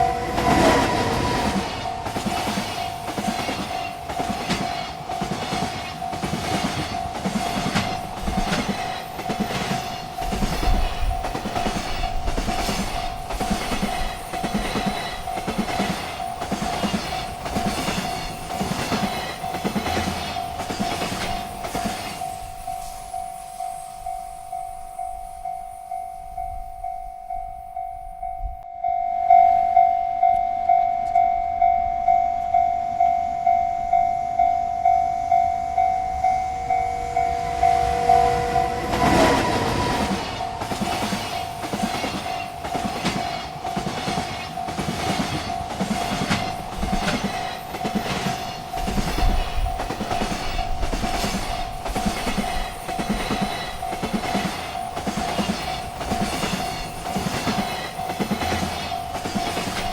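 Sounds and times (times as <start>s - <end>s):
train wheels clattering over rails: 0.0s - 23.3s, 36.5s - 59.9s
railroad crossing bell ringing: 0.0s - 59.9s.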